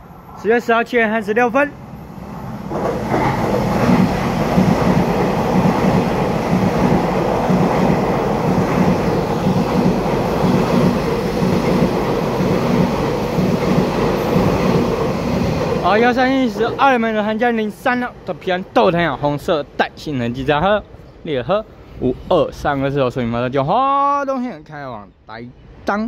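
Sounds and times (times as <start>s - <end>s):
train wheels clattering on rails: 2.6s - 16.9s.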